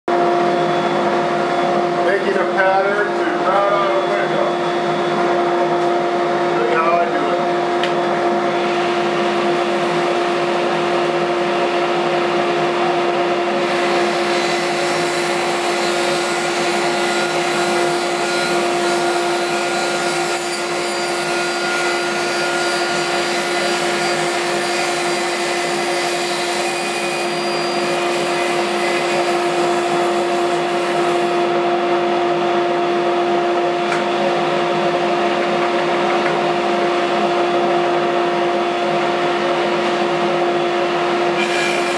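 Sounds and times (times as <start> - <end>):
table saw whine: 0.1 - 41.9
saw blade cutting: 13.6 - 31.6, 41.3 - 41.9.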